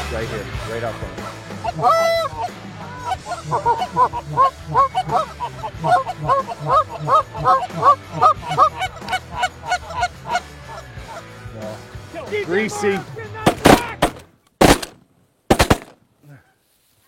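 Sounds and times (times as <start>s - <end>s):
geese honking: 0.5s - 11.8s.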